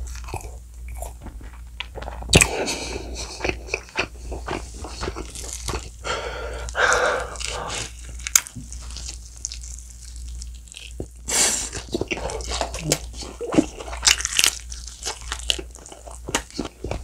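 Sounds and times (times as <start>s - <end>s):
wet sticky chewing: 3.2s - 6.0s, 6.6s - 17.0s.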